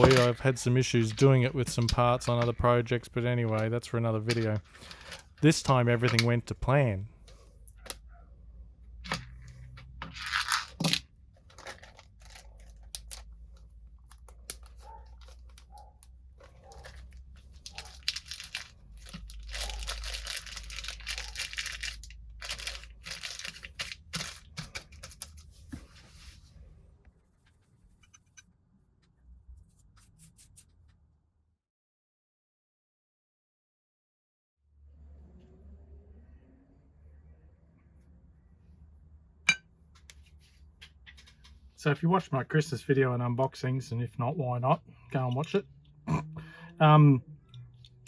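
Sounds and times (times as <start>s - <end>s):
rough scratchy rubbing and rustling: 14.6s - 26.6s.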